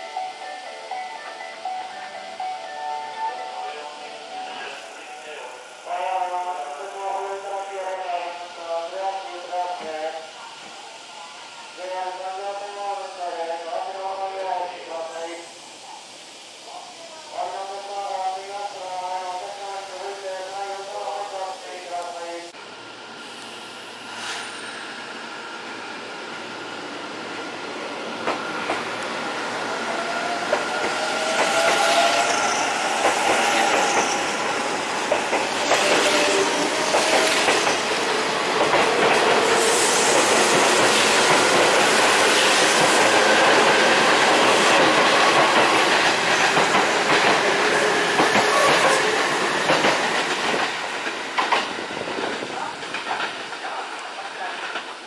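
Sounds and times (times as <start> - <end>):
train wheels clattering over rails: 28.1 - 55.0.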